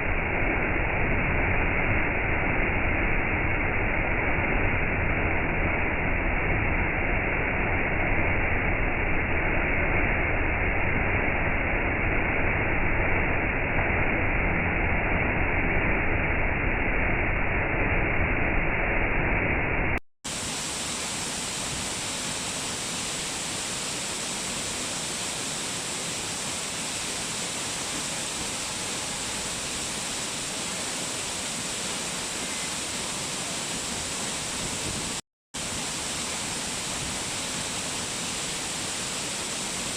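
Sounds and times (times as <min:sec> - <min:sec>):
waterfall rushing: 0:20.3 - 0:39.9.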